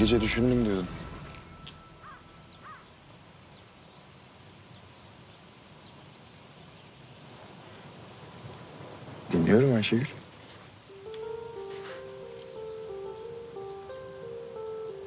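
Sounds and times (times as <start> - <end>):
faint steady hiss: 0.0 - 15.0
faint bird chirps: 1.3 - 7.0
bird calls: 1.4 - 7.0.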